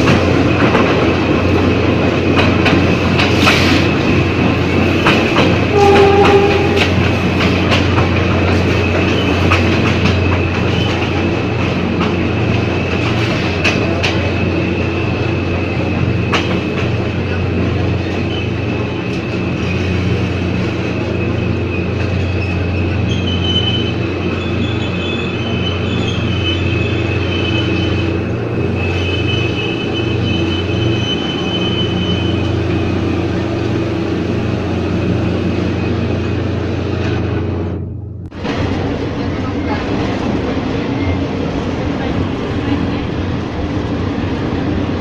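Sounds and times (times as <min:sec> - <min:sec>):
train rumble and hum: 0:00.0 - 0:45.0
wheels squealing: 0:18.0 - 0:33.4.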